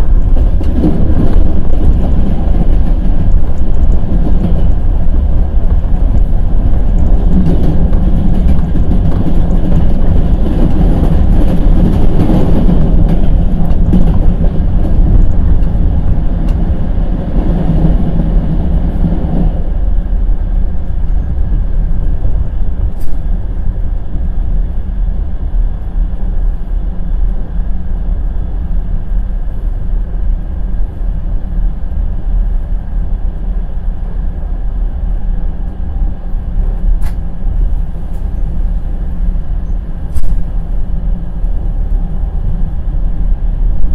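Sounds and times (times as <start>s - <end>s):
train wheels clattering on rails: 0.0s - 24.8s.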